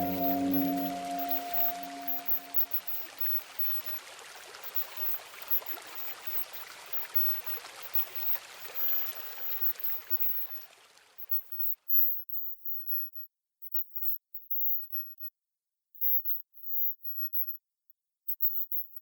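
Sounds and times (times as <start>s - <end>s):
rain patter: 0.0s - 11.2s.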